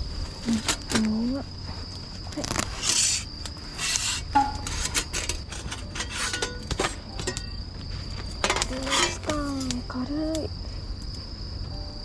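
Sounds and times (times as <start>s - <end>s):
cricket trill: 0.0s - 12.0s
camp gear clicks and scrapes: 3.8s - 7.5s.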